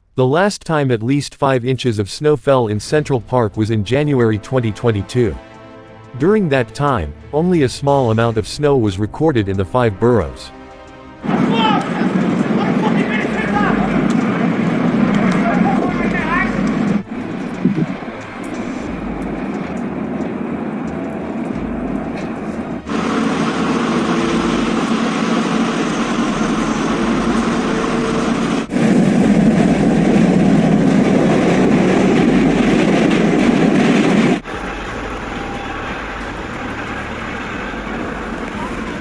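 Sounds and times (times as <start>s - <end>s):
vehicle noise: 10.6s - 39.0s.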